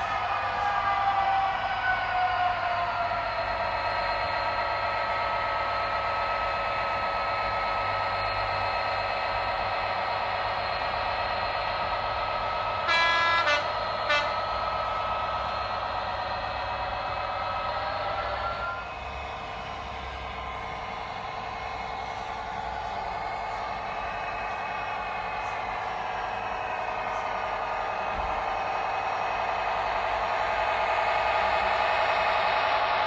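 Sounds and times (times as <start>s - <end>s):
diesel engine sound from small speaker: 1.5s - 33.0s
locomotive horn: 12.8s - 14.5s.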